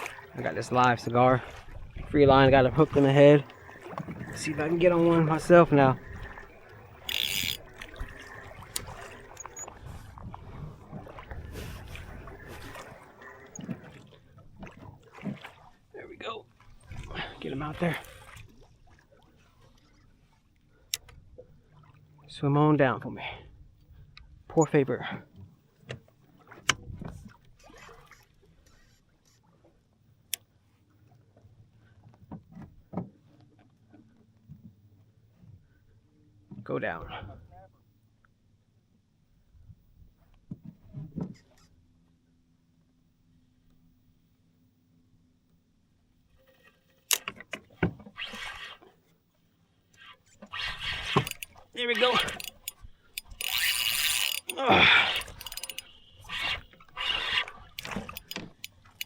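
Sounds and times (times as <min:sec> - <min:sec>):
low water noise: 0:00.0 - 0:59.0
handling clicks and knocks on kayak: 0:47.0 - 0:48.2, 0:51.1 - 0:55.9, 0:57.3 - 0:59.0.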